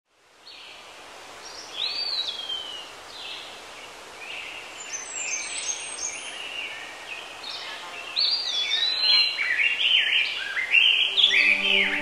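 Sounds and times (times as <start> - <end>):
steady background hiss: 0.1 - 12.0
birds singing: 1.5 - 12.0
whistled note sliding down: 11.0 - 12.0.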